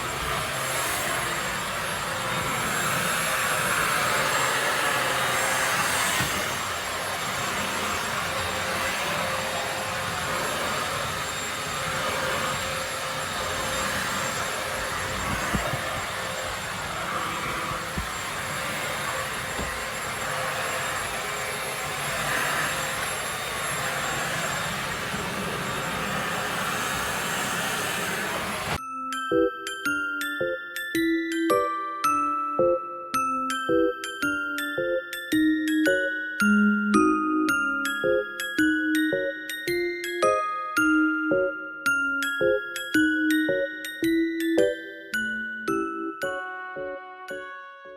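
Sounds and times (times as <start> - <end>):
vacuum cleaner running: 0.0 - 28.8
glockenspiel music: 28.8 - 47.9.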